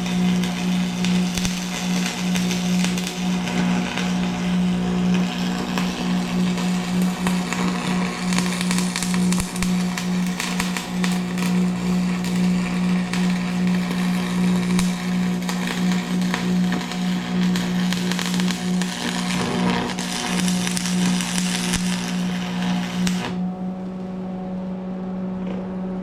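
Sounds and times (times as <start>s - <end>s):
welding arc crackling: 0.0s - 23.4s
low machine hum: 0.0s - 26.0s.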